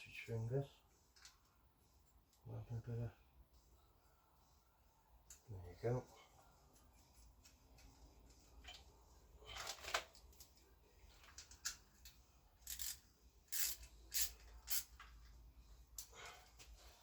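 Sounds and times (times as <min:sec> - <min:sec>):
small parts rubbing and scraping: 0:11.1 - 0:15.3.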